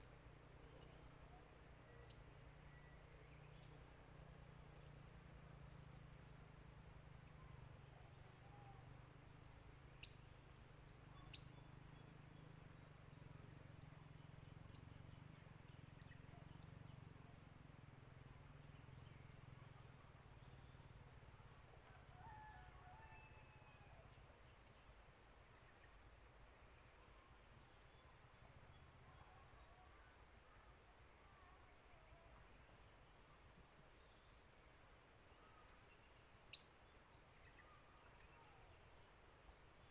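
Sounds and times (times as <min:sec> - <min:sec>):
high-pitched cricket trill: 0:00.0 - 0:39.9.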